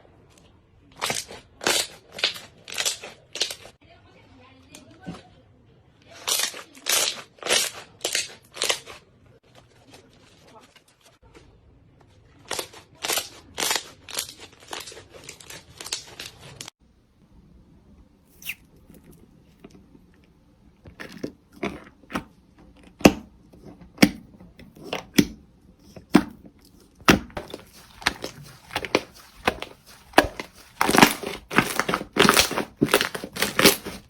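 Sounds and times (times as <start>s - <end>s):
crackly slime squishes: 0.3s - 3.8s, 18.3s - 34.0s
sharp slime pops: 21.6s - 34.0s.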